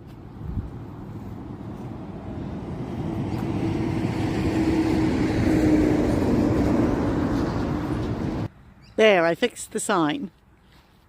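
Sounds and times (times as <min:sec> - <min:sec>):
vehicle driving past: 0:00.6 - 0:08.5.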